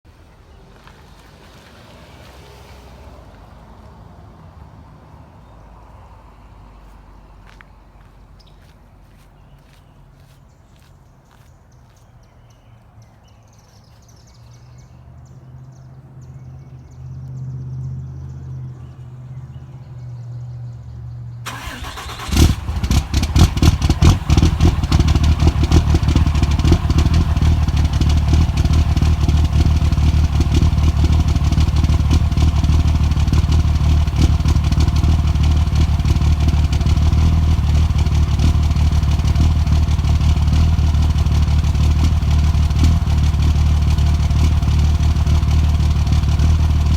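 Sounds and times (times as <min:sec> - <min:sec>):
engine cold start misfiring: 0:21.5 - 0:26.2.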